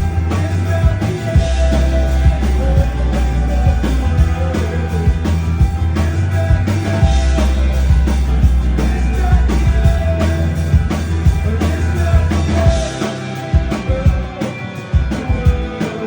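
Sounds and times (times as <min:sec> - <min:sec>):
rock band playing loudly: 0:00.0 - 0:16.0.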